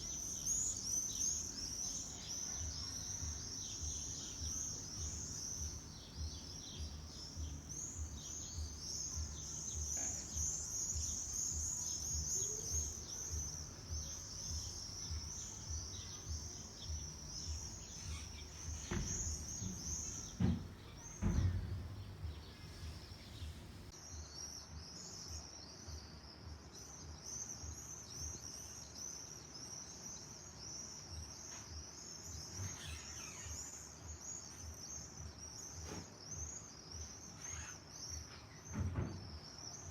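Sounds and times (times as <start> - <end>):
loud low thumps: 0.0 - 23.9
songbirds chirping and twittering: 0.0 - 39.9.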